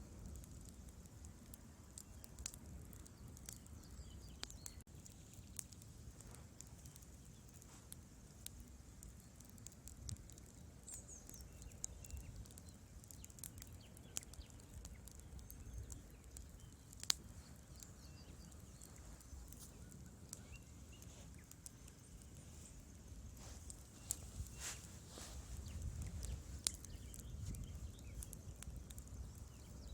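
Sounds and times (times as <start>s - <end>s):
fire low rumble: 0.0s - 29.9s
wood fire crackling and popping: 0.0s - 29.9s.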